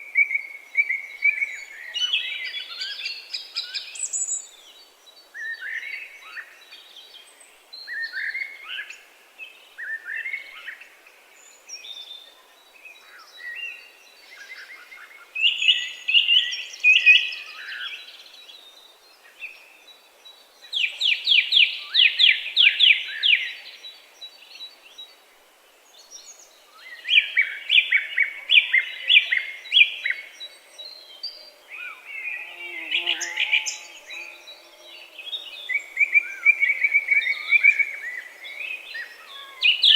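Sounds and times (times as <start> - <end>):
songbirds singing trills: 25.9 - 39.9.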